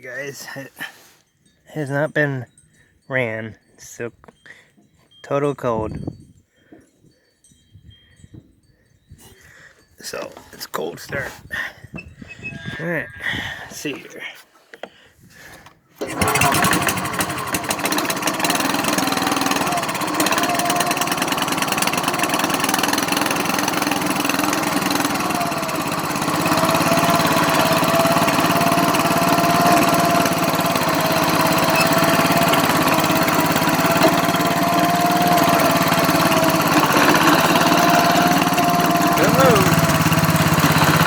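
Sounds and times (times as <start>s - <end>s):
riding lawn mower engine running: 16.0s - 41.0s.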